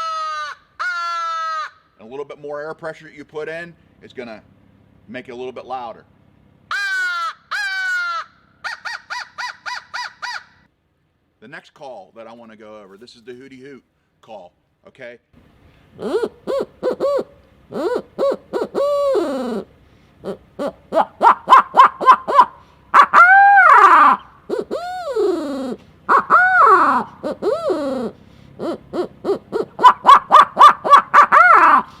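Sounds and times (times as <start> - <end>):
owl call hooting: 6.7 - 10.7, 15.8 - 32.0.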